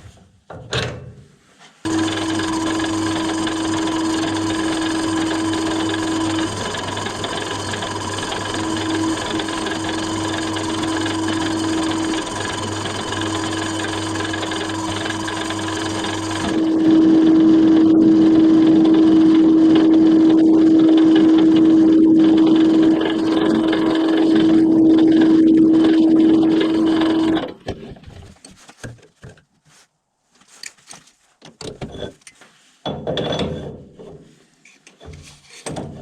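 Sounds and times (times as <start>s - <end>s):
electric motor humming: 1.9s - 27.5s.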